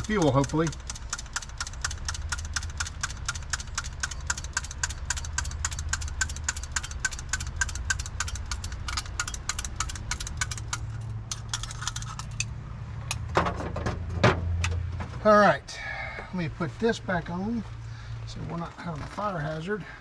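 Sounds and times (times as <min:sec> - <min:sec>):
rapid engine ticking: 0:00.0 - 0:12.5
engine idling: 0:00.0 - 0:20.0.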